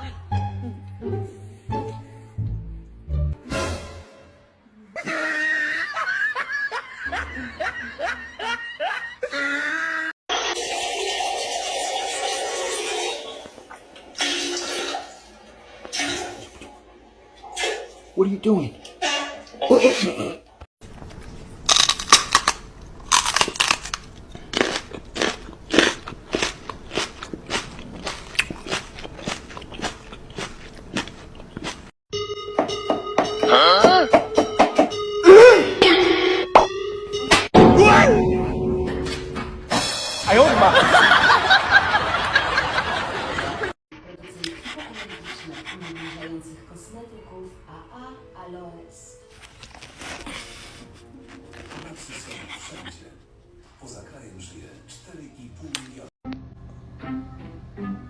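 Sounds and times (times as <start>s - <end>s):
person laughing: 4.9s - 10.1s
dog chewing crunchy food: 20.8s - 31.9s, 49.4s - 52.8s.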